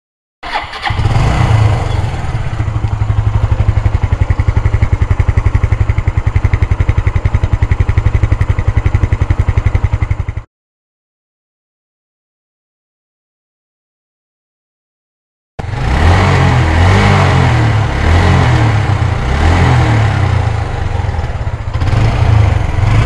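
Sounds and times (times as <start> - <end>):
motorcycle engine starting and idling: 0.4 - 10.5, 15.6 - 23.0.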